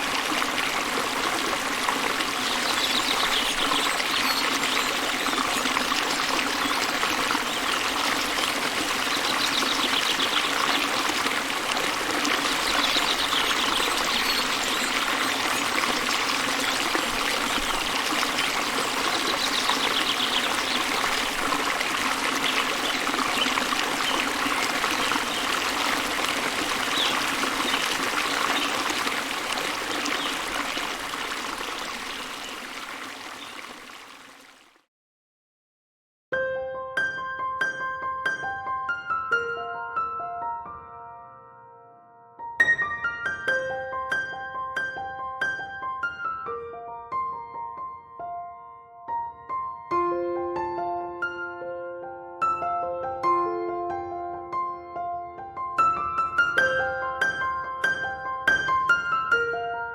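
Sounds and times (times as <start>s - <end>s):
waterfall splashing: 0.0s - 34.7s.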